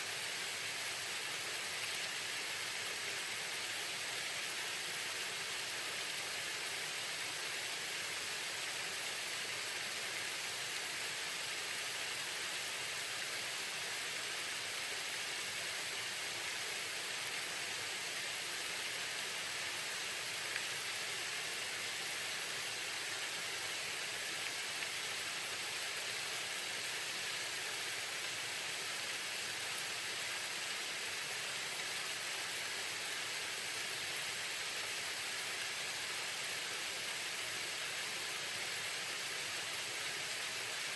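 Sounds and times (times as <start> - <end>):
small waterfall splashing: 0.0 - 40.9.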